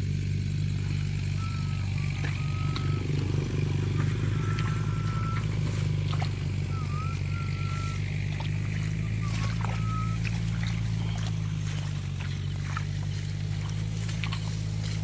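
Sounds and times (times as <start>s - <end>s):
small engine droning: 0.0s - 15.0s
high whistled tones: 1.0s - 11.3s.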